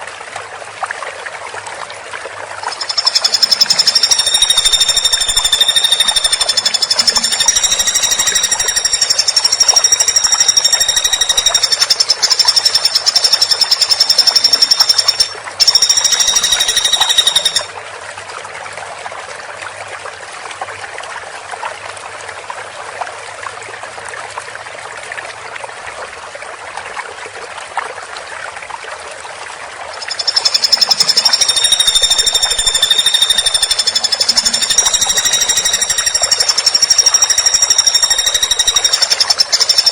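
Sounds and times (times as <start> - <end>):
woodpecker rattling trill: 2.7 - 17.7, 30.0 - 39.9.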